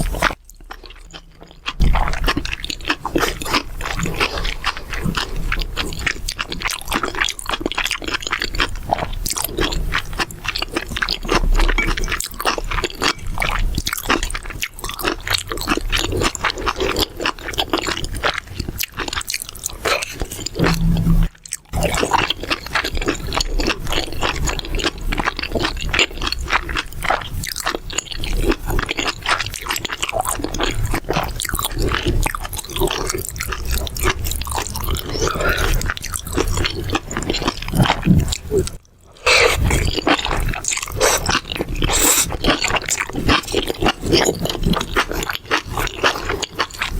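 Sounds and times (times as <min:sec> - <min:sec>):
close chewing and crunching food: 0:00.0 - 0:46.9.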